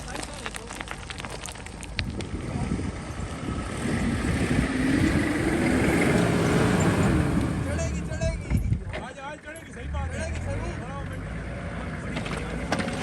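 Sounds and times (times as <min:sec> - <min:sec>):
car engine revving under load: 0:02.2 - 0:09.0, 0:09.8 - 0:13.0.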